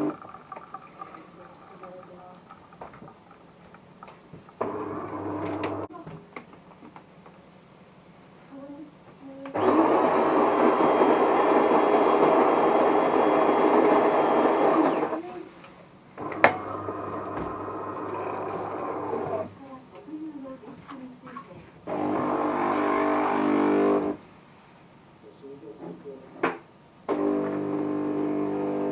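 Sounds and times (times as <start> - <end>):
bean grinder whining: 0.0 - 5.9, 9.5 - 15.2, 16.2 - 19.5, 21.9 - 24.2
espresso machine motor hum: 0.0 - 5.9, 16.2 - 19.5, 21.9 - 24.2, 27.1 - 28.9.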